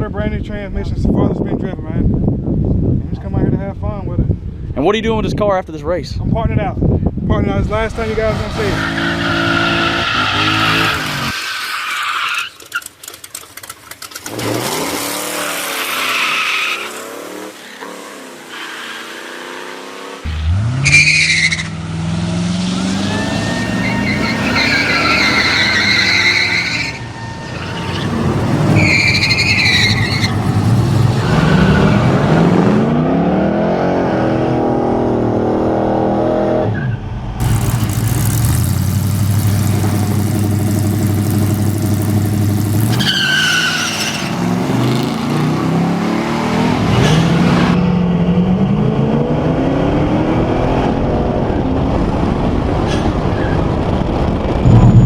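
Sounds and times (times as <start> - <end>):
car engines revving: 7.8 - 11.4, 14.2 - 55.0
tires squealing: 7.9 - 13.0, 14.3 - 19.9, 20.5 - 32.9, 36.7 - 47.9.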